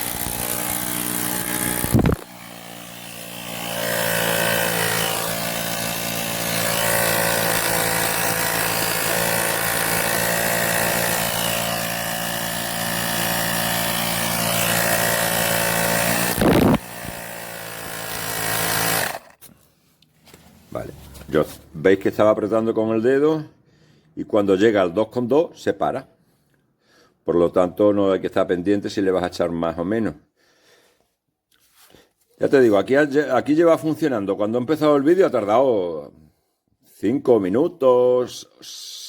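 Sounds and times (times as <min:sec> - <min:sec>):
tyre inflator compressor buzzing: 0:00.0 - 0:19.6.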